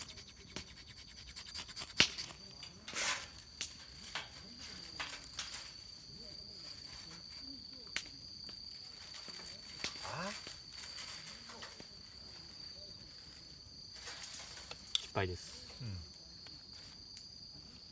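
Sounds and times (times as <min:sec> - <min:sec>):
dry leaves crackling: 0:08.5 - 0:15.0
leaves rustling: 0:08.6 - 0:15.8
high-pitched insect drone: 0:08.8 - 0:11.6.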